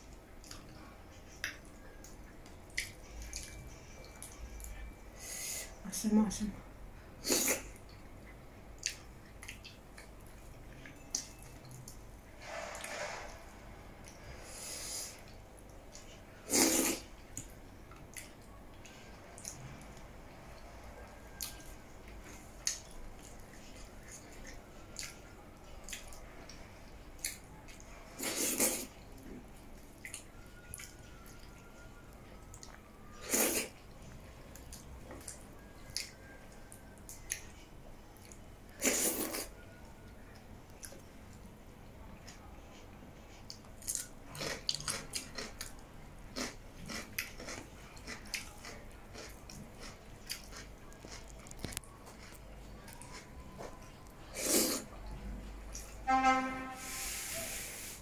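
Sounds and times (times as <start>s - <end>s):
wet chewing and mouth clicks: 0.1s - 4.8s, 7.4s - 12.0s, 15.2s - 31.6s, 32.2s - 39.5s, 43.3s - 55.9s.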